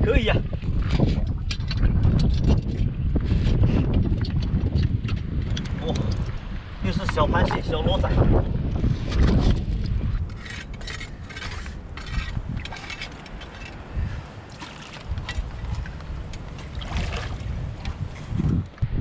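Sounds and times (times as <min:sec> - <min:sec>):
wind buffeting microphone: 0:00.0 - 0:19.0
rustling and clicking: 0:09.1 - 0:13.8.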